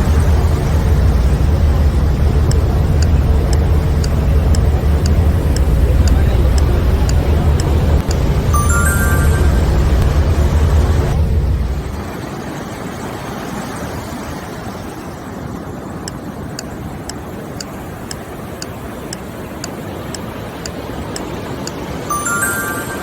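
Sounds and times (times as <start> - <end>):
steady rushing noise: 0.0 - 23.0
timer ticking: 0.2 - 10.2, 16.1 - 23.0.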